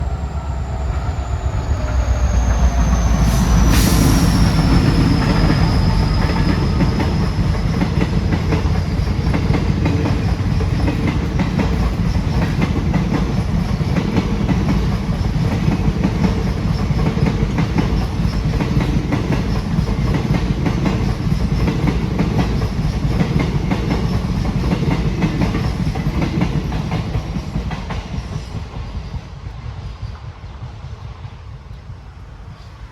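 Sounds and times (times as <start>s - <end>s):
high squeal falling in pitch: 0.0s - 7.8s
train wheels rumbling on rails: 0.0s - 32.9s.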